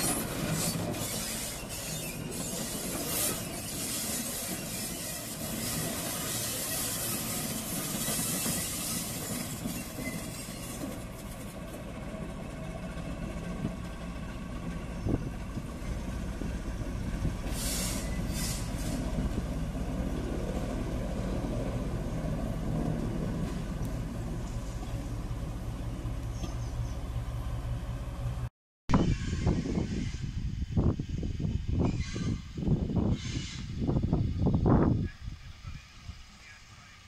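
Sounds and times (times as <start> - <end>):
train hissing: 0.0 - 11.4, 15.7 - 19.7, 29.1 - 37.0
train wheels rumbling on rails: 0.0 - 37.0.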